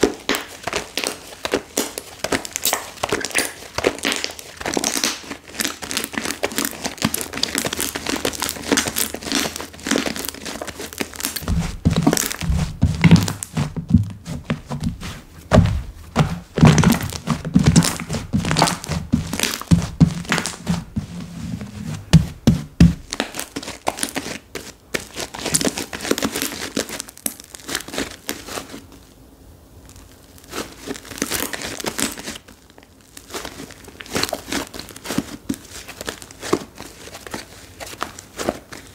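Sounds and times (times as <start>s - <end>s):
soft low thuds: 11.4s - 23.2s.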